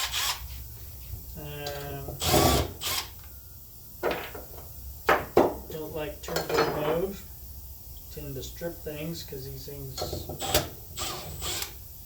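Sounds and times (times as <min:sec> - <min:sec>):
drill motor whine: 0:02.2 - 0:03.1, 0:10.4 - 0:11.8
metal tools clanking: 0:06.3 - 0:07.1.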